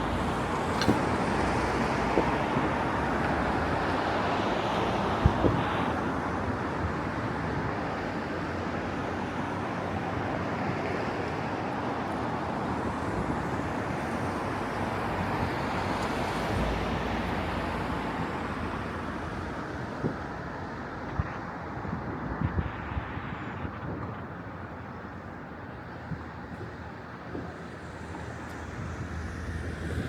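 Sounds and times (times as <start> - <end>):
distant city traffic hum: 0.0 - 30.0
wind: 0.0 - 30.0.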